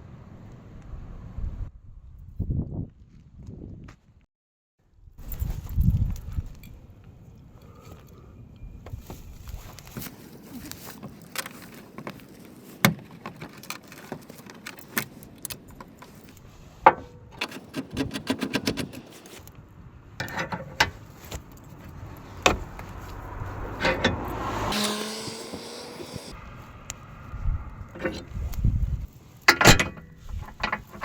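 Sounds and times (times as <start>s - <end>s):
metal tools clinking and knocking: 20.2s - 21.8s
short motor whir: 24.3s - 26.4s.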